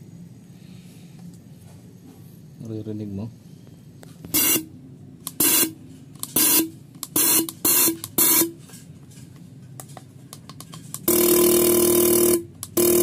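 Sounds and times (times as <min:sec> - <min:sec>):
fuel injector solenoid buzz: 0:04.3 - 0:08.5, 0:11.0 - 0:13.0.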